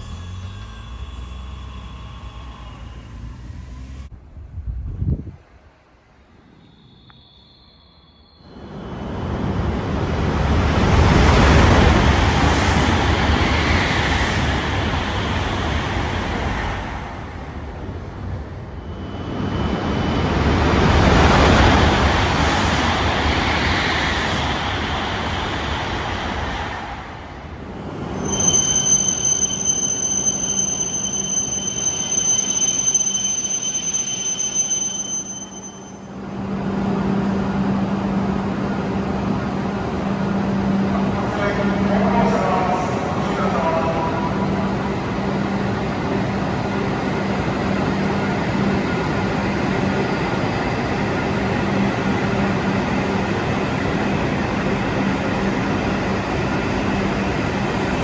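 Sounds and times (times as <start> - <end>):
high-pitched whine: 0.0 - 4.1, 18.8 - 58.0
train wheels rumbling: 8.6 - 58.0.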